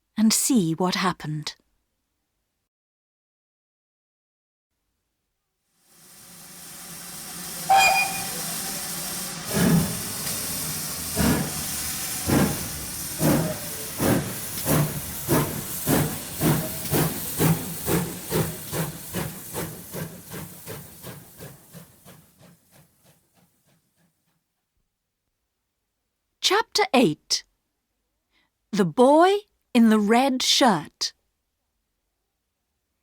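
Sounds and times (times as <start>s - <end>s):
steam hissing: 5.8s - 23.2s
locomotive exhaust chuffs: 6.0s - 24.2s
steam whistle blast: 7.4s - 9.7s.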